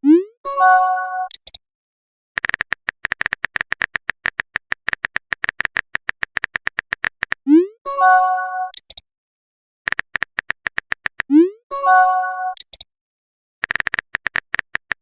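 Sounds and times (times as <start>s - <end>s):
rapid keyboard clicks: 2.4s - 7.4s, 9.9s - 11.3s, 13.6s - 15.0s
chiming message alert: 11.7s - 12.6s.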